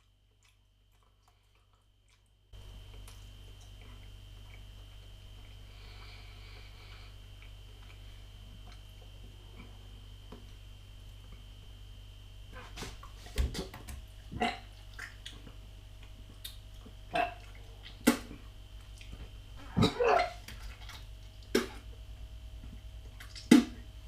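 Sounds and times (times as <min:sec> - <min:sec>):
mouth and throat noises chewing: 0:00.0 - 0:05.7, 0:07.2 - 0:09.7, 0:14.4 - 0:19.3.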